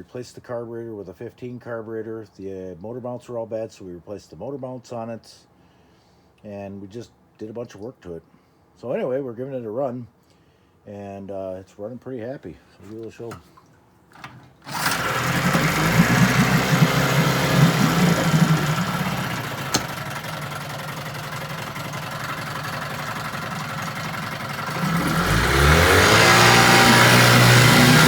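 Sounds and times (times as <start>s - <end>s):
outboard motor running: 14.6s - 28.0s.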